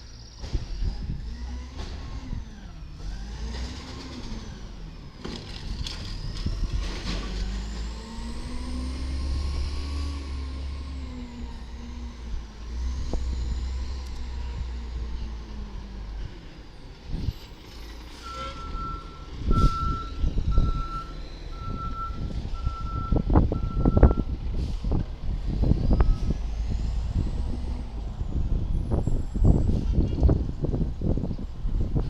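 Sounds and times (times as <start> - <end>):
diesel engine running: 0.1 - 32.0
reversing alarm beeping: 18.2 - 24.3.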